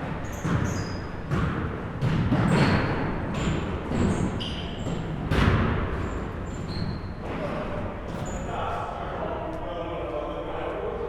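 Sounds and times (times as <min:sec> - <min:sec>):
basketball bouncing on gym floor: 0:00.0 - 0:07.0
shoe squeaks: 0:00.1 - 0:01.3, 0:02.5 - 0:05.1, 0:06.0 - 0:08.5
echoing background voices: 0:07.4 - 0:11.0.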